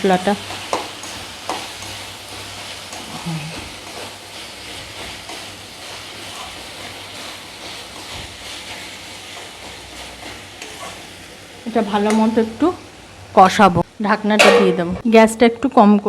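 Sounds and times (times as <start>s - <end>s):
food sizzling in a pan: 0.0s - 16.0s
spatula scraping pan: 0.5s - 11.2s.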